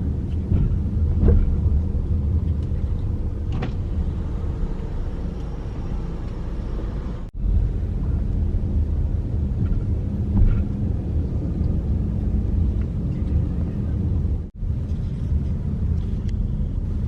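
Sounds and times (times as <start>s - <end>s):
car driving rumble: 0.0s - 17.0s.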